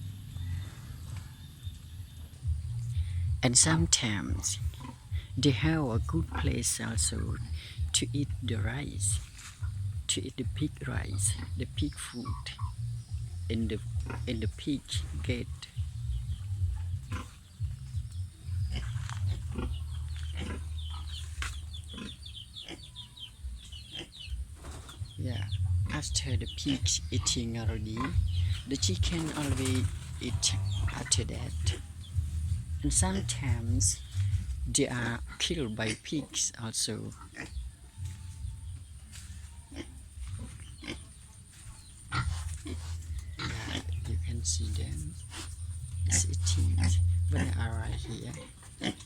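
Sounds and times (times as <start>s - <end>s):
pigs grunting and eating: 0.0s - 24.4s, 25.0s - 36.4s, 37.1s - 49.0s
chicks peeping: 6.3s - 36.2s, 37.1s - 49.0s.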